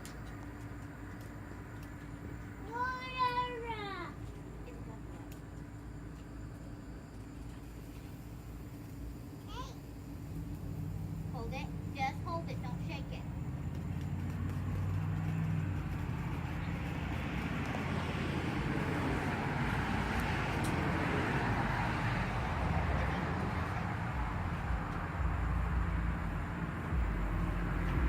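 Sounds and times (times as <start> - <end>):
steady low rumble: 0.0 - 28.0
firework hissing: 7.1 - 26.4.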